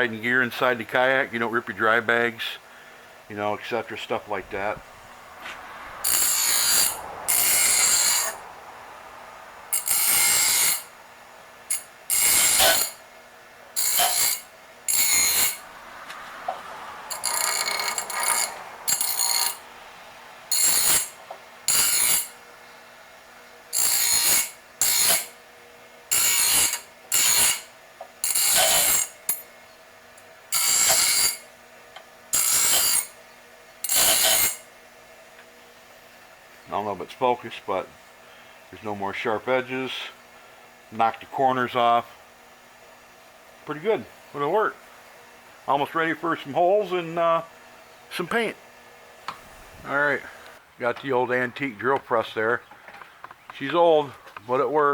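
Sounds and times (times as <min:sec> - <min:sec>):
grinder grinding metal: 0:05.4 - 0:08.6, 0:09.7 - 0:11.0, 0:11.6 - 0:13.1, 0:13.7 - 0:16.2, 0:16.9 - 0:19.8, 0:20.5 - 0:22.4, 0:23.6 - 0:25.4, 0:26.0 - 0:29.5, 0:30.2 - 0:31.6, 0:32.3 - 0:33.2, 0:33.8 - 0:34.7.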